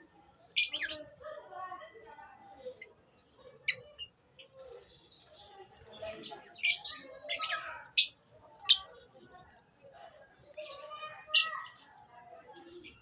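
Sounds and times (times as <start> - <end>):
lovebirds chirping: 0.4 - 1.2, 2.4 - 9.4, 12.5 - 13.0.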